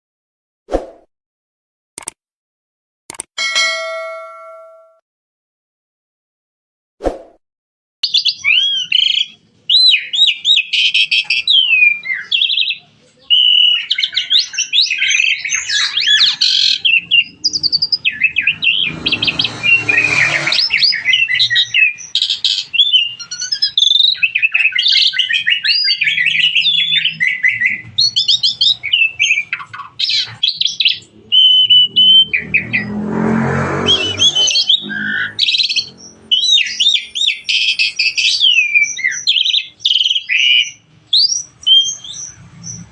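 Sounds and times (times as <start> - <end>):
starling singing: 8.0 - 33.0, 33.8 - 42.9
harsh rasping bird calls: 8.0 - 42.9.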